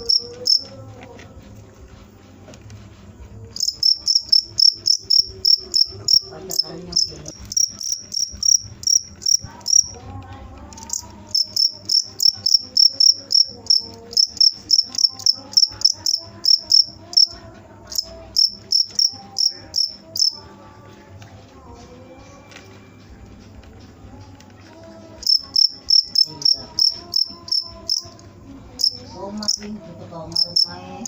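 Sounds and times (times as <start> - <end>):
cricket chirping: 0.0 - 0.8, 3.4 - 10.0, 10.7 - 20.4, 25.2 - 31.0.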